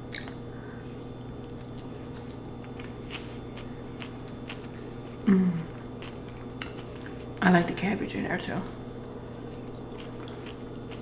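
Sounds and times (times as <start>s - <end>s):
low steady hum: 0.0s - 11.0s
chewing and wet mouth clicks: 0.1s - 0.4s.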